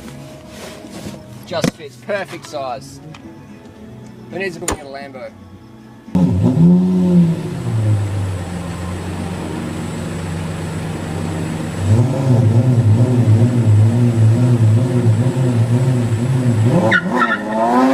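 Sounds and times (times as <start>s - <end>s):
engine drone with pulsing note: 6.1s - 17.9s.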